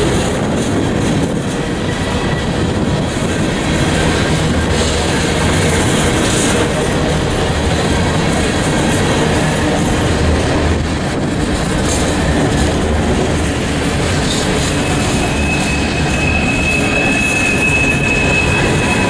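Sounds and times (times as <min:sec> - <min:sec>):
freight cars rumbling over rails: 0:00.0 - 0:19.0
high-pitched wheel squeal: 0:14.2 - 0:19.0.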